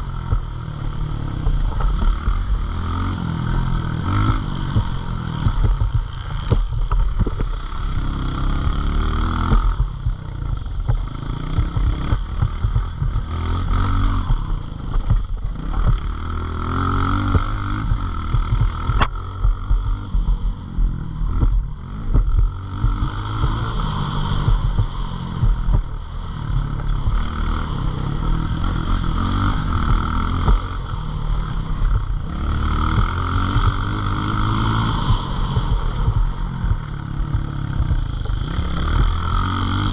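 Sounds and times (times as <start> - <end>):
pit bike engine revving: 0.0 - 39.9
sharp click: 18.8 - 19.2.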